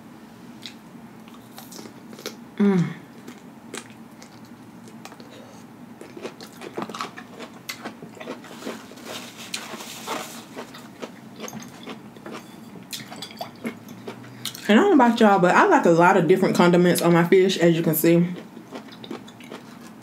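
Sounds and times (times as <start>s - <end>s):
chewing crispy fried food: 0.6s - 2.4s, 3.1s - 14.7s, 18.3s - 20.0s.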